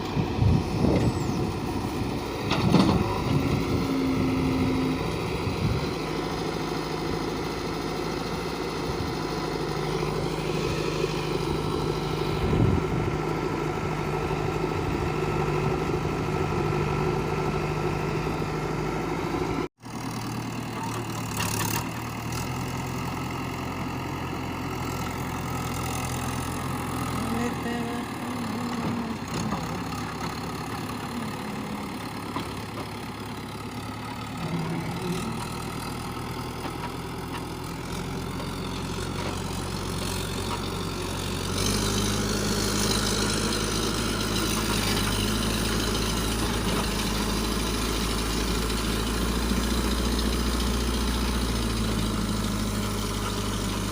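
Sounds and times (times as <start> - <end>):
diesel engines idling: 0.0 - 53.9.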